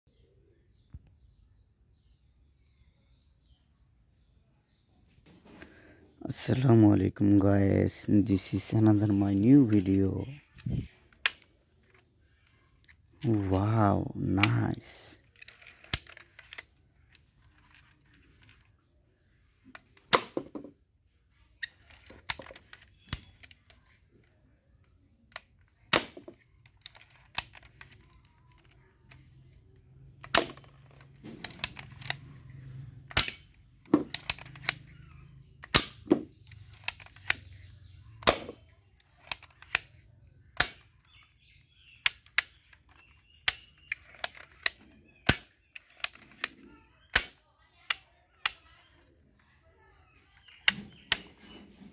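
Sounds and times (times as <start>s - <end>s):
toy guns firing sharp snaps: 14.4s - 16.7s, 20.0s - 20.5s, 25.3s - 29.4s, 30.0s - 48.8s.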